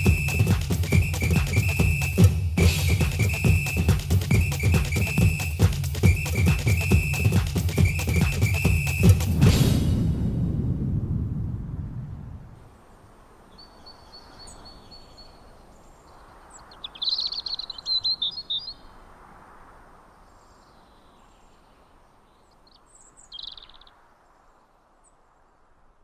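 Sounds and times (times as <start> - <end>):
birds chirping: 0.0 - 9.5, 13.4 - 19.0, 20.1 - 24.3
faint outdoor hiss: 0.0 - 26.0.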